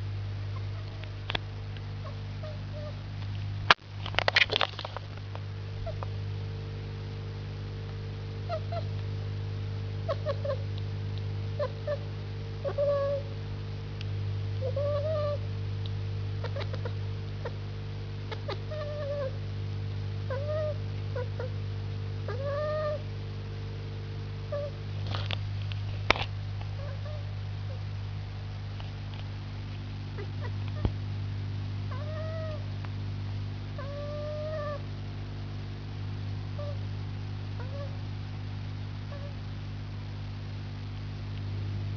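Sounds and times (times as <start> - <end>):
steady low hum: 0.0 - 41.9
cat chirping: 2.0 - 3.0, 10.1 - 10.6, 12.6 - 13.2, 14.6 - 15.4, 16.4 - 17.6, 18.3 - 19.4, 20.3 - 21.5, 22.3 - 23.0, 24.5 - 24.8, 26.8 - 27.8, 31.9 - 32.6, 33.8 - 34.8, 36.6 - 36.8, 37.6 - 38.0, 39.1 - 39.4.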